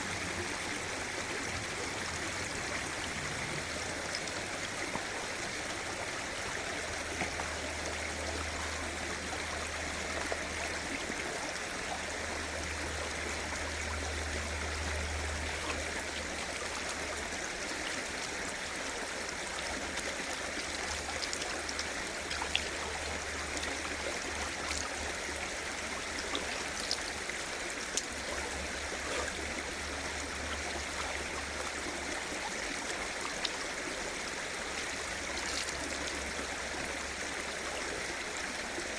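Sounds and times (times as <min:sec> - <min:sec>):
mountain stream flowing: 0:00.0 - 0:38.9.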